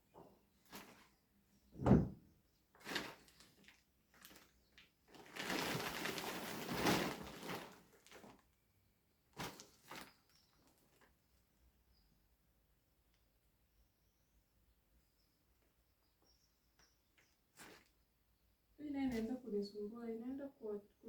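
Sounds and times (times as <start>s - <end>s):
plastic packaging rustling: 2.8s - 8.5s, 9.4s - 11.2s, 17.6s - 17.9s.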